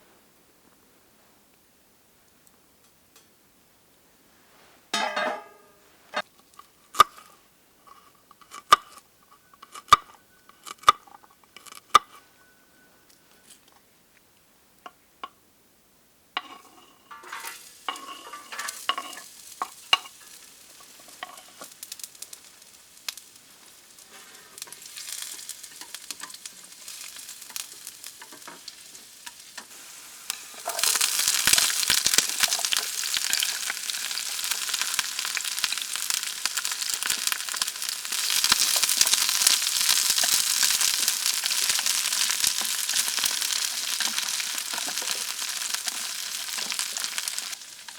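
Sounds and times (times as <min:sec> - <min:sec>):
food sizzling in a pan: 0:16.4 - 0:47.9.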